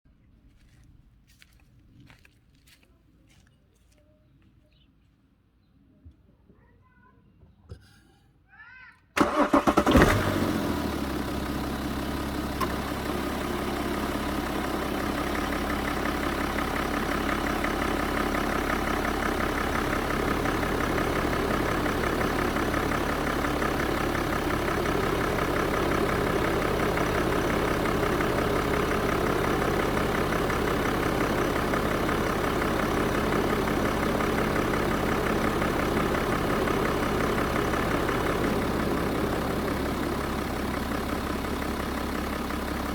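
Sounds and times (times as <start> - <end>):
diesel engine idling: 9.2 - 42.9.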